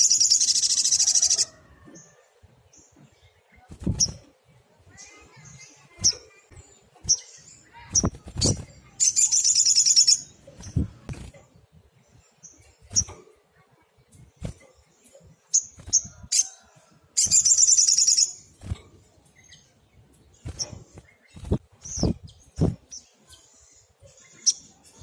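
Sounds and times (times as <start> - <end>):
high-pitched bird trill: 0.0 - 1.5, 7.1 - 10.4, 17.2 - 18.4
bird singing: 0.0 - 13.8, 14.6 - 25.0.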